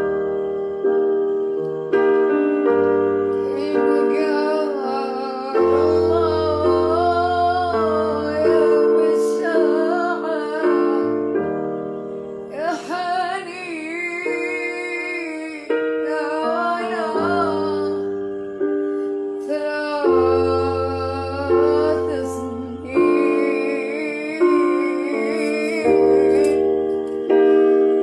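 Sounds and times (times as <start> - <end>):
keyboard chords: 0.0 - 28.0
woman singing with vibrato: 3.4 - 11.4, 12.5 - 26.7.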